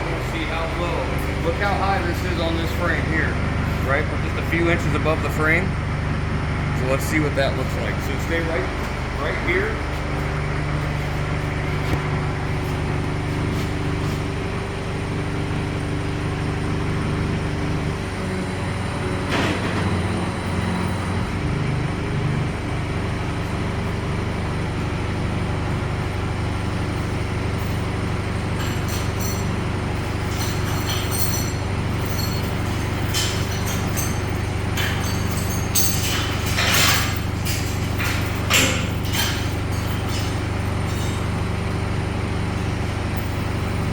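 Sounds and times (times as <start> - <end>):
metallic clanks: 27.0 - 43.9.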